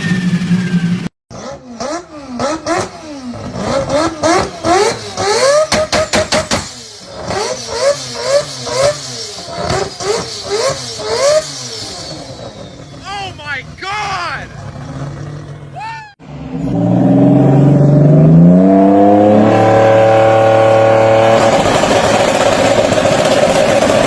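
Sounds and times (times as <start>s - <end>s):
car engine revving: 0.0s - 13.0s, 14.5s - 24.0s
sharp exhaust pops: 2.4s - 7.4s.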